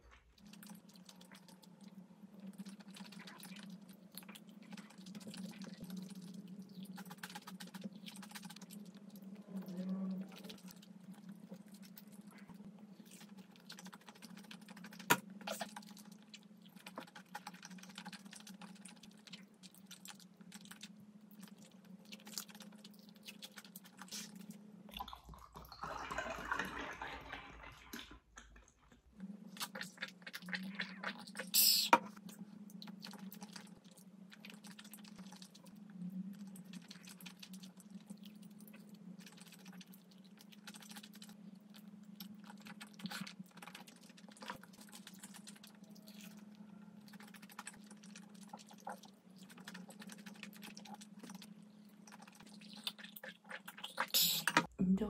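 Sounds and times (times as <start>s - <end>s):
chewing crunchy food: 0.0s - 25.6s, 28.0s - 54.7s.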